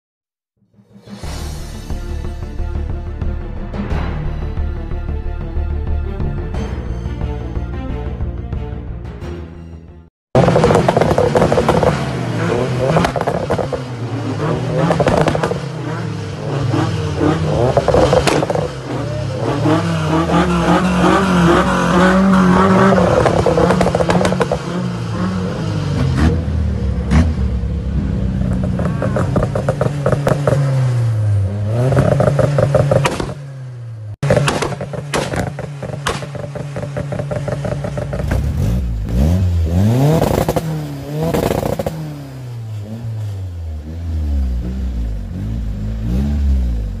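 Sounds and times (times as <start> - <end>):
car engine revving against limiter: 10.4 - 47.0
exhaust crackles and backfires: 10.4 - 47.0.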